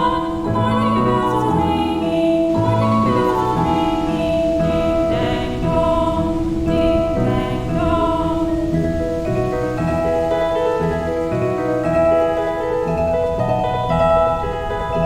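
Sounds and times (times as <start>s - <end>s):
calm ambient music: 0.0s - 15.0s.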